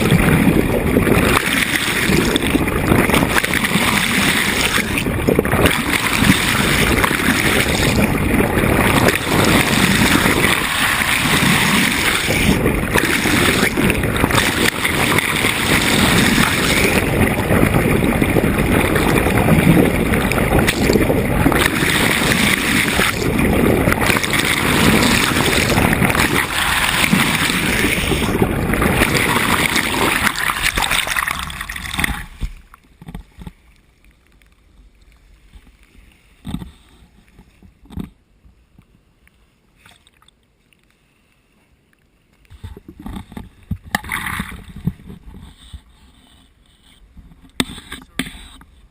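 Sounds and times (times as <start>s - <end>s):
wind buffeting microphone: 0.0s - 32.5s
water rushing past boat hull: 0.0s - 33.6s.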